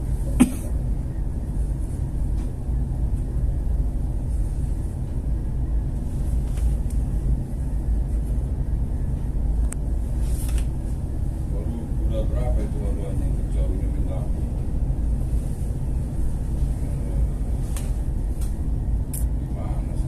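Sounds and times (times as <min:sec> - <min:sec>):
ship engine drone: 0:00.0 - 0:20.0.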